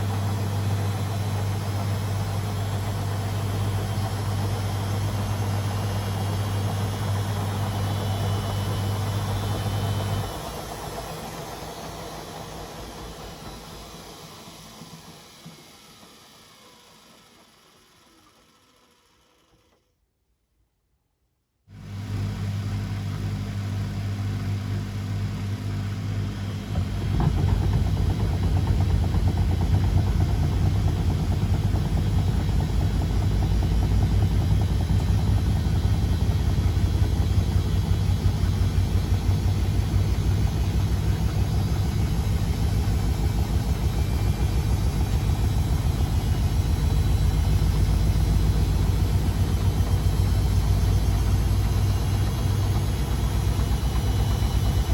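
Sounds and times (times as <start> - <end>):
washing machine drum throbbing: 0.0 - 15.6, 21.8 - 54.9
washing machine motor hum: 0.0 - 19.3, 21.7 - 54.9.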